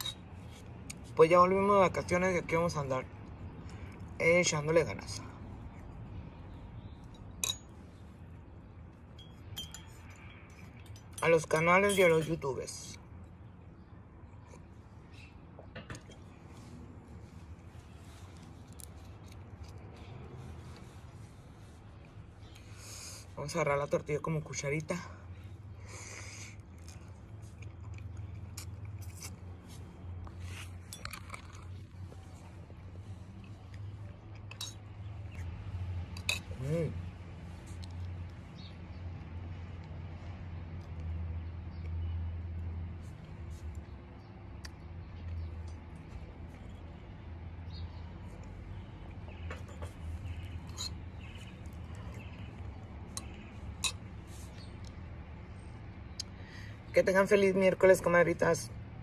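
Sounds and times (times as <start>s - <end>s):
chewing and mouth sounds: 26.1s - 36.6s.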